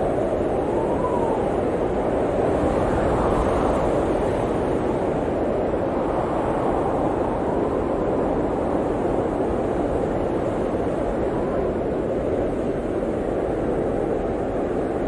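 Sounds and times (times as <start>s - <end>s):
blizzard wind blowing: 0.0s - 15.0s.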